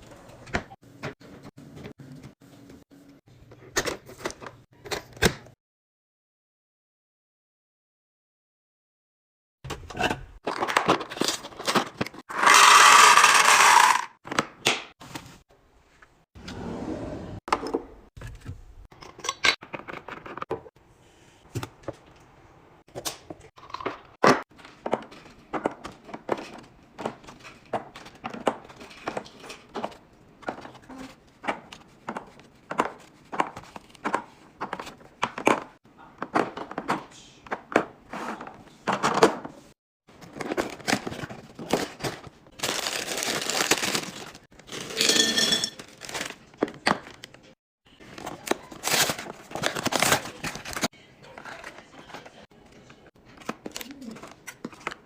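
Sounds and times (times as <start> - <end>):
packages being opened and set down: 40.1 - 47.4, 48.1 - 52.3.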